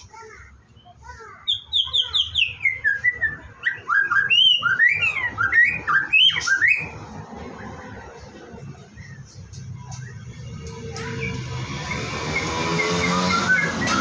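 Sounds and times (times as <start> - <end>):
songbird whistling: 0.8 - 7.0, 9.0 - 14.0.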